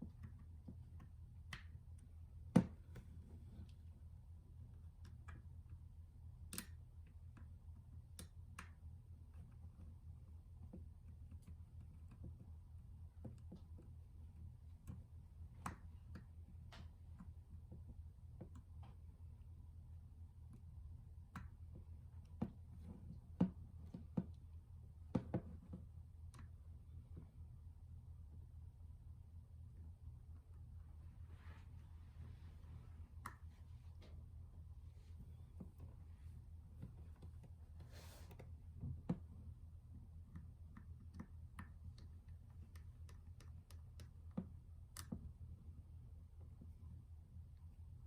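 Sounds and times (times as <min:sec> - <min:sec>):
small clicks and taps: 0:00.0 - 0:03.8, 0:04.6 - 0:19.4, 0:20.4 - 0:27.4, 0:38.4 - 0:45.7
low steady hum: 0:00.0 - 0:48.0
light sharp clicks of small parts: 0:06.4 - 0:09.9, 0:40.3 - 0:45.4.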